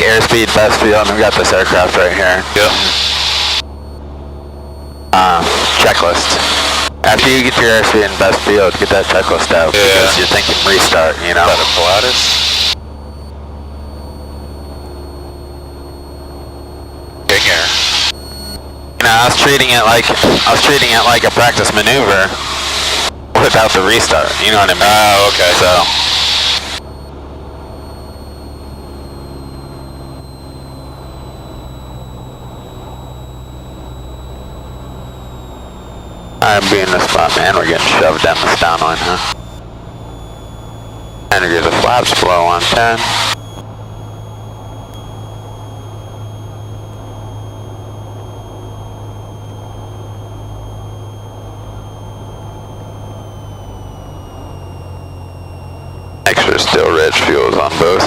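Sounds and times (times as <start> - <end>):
airplane engine and propeller droning: 0.0 - 58.0
thin high whine: 0.0 - 58.0.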